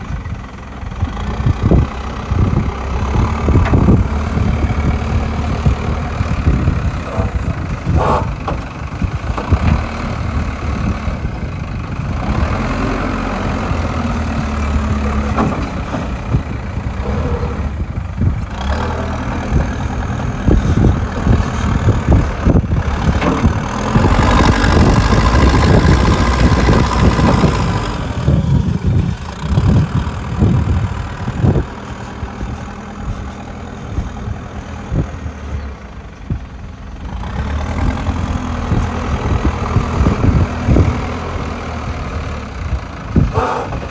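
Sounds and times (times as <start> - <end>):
digger diesel engine running: 0.0 - 43.9
irregular knocks and clanks: 5.6 - 10.2.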